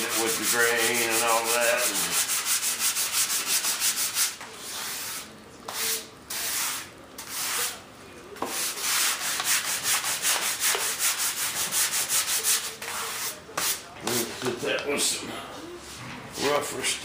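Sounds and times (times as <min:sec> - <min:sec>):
sandpaper rubbing back and forth: 0:00.0 - 0:07.8, 0:08.5 - 0:14.3.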